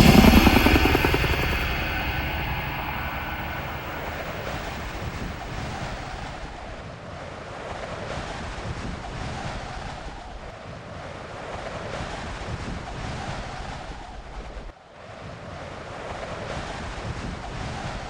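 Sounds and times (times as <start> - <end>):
wind blowing: 0.0 - 6.0.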